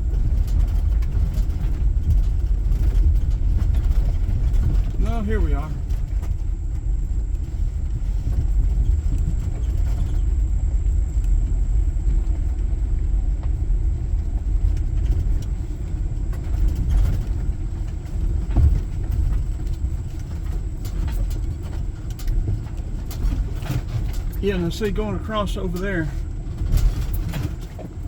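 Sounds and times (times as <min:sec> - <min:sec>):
car engine and tyres rumbling: 0:00.0 - 0:28.0
car knocking over bumps: 0:14.2 - 0:25.0.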